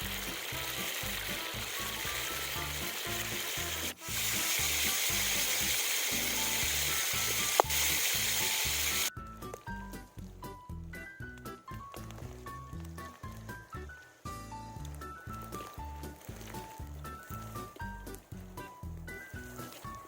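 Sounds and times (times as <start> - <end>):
pork frying in hot oil: 0.0 - 20.0.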